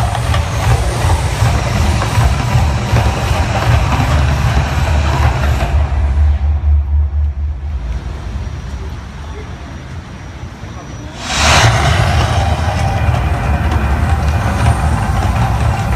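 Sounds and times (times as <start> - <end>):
deep eruption rumble: 4.9 - 9.4, 11.1 - 15.9
hissing rush of noise: 11.0 - 15.9.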